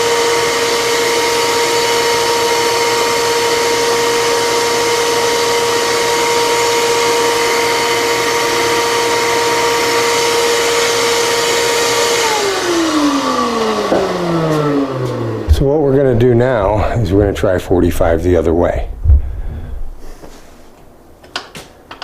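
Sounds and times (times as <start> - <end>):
miter saw motor whining: 0.0 - 16.0.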